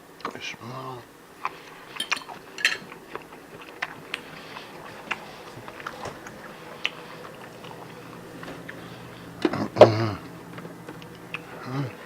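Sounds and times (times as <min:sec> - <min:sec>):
faint room hum: 0:00.0 - 0:12.0
person chewing: 0:01.4 - 0:11.8.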